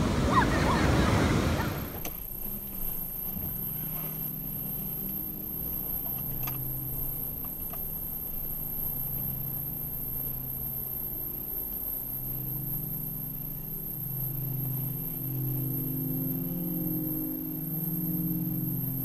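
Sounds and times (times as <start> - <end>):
ocean surf: 0.0 - 2.0
car engine hum: 0.0 - 2.2
faint high-pitched whine: 0.0 - 19.0.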